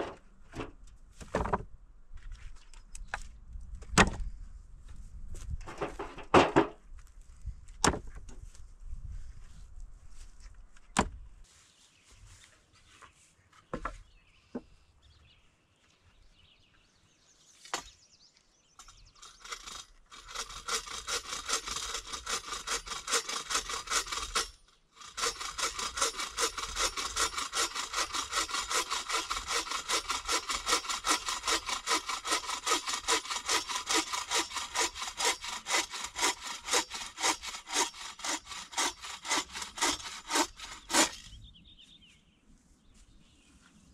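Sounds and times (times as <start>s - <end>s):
hand saw cutting wood: 18.8s - 41.3s.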